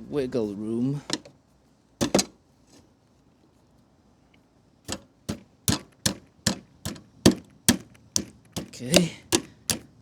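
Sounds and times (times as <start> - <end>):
hand tool clicking on fastener: 5.7 - 9.9.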